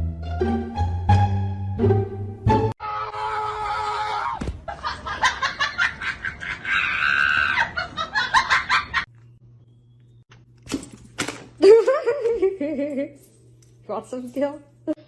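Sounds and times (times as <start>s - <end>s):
high-pitched scream: 2.8s - 4.4s
laughter: 4.6s - 9.1s, 11.6s - 13.2s.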